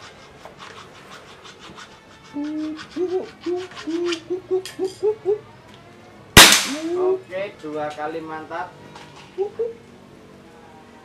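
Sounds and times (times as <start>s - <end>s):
bird hooting: 2.3s - 5.5s.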